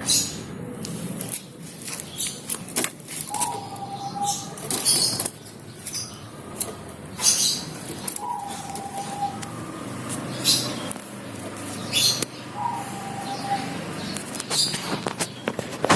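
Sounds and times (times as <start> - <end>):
bird raspy calls: 3.2 - 15.6.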